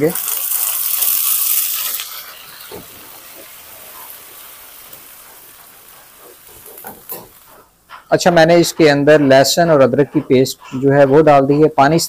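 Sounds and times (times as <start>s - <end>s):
hot oil sizzling in a wok: 0.0s - 7.6s.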